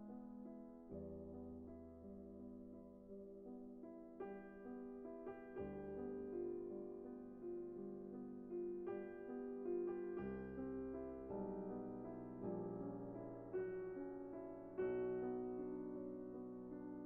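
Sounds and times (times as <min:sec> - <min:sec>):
slow gentle piano melody: 0:00.0 - 0:17.0.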